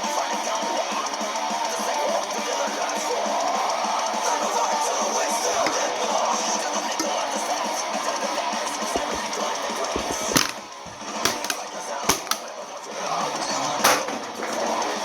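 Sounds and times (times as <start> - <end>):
loud music: 3.7 - 15.0
sharp cracks: 8.7 - 12.6.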